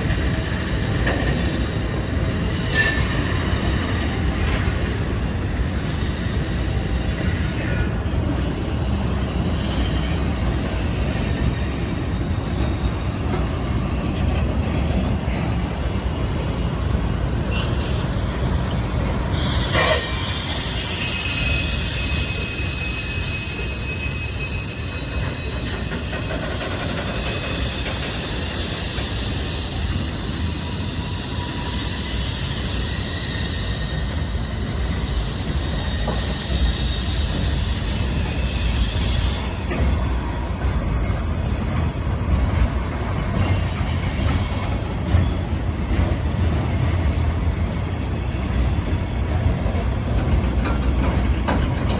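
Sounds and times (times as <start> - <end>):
freight train cars rumbling: 0.0 - 51.9
train wheels squealing: 0.0 - 51.9.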